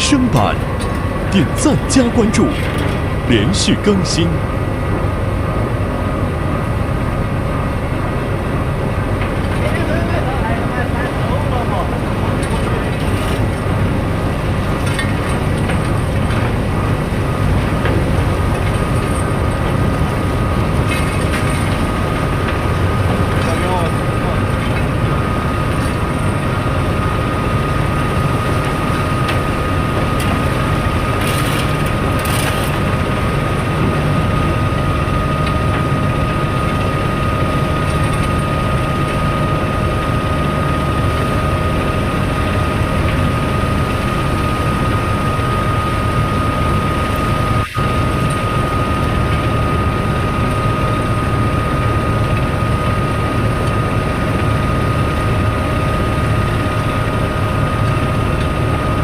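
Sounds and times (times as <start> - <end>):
heavy machinery rumbling: 0.0 - 5.7
high machine whine: 0.0 - 59.0.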